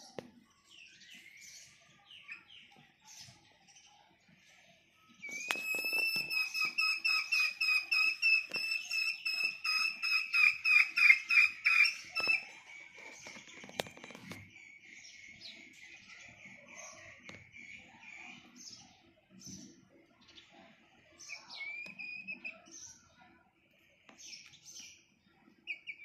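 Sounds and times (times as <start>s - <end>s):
bird whistling call notes: 5.2s - 12.5s.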